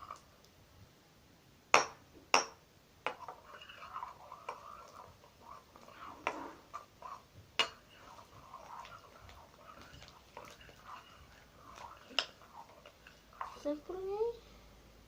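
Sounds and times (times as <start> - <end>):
slime squelching: 3.5 - 13.8.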